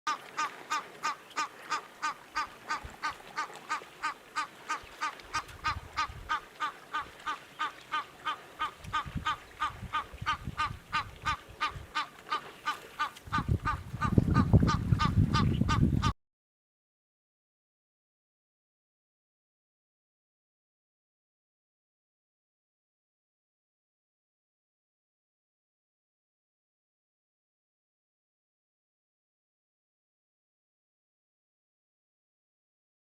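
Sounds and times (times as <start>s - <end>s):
bird calling rapidly: 0.1s - 16.1s.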